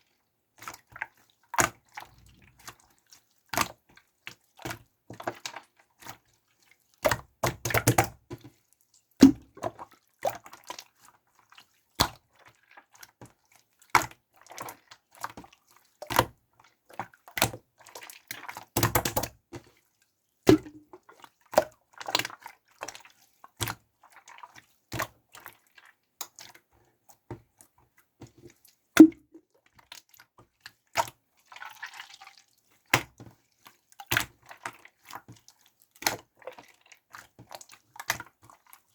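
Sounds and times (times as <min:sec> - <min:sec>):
slime popping and squelching: 0:20.5 - 0:21.0.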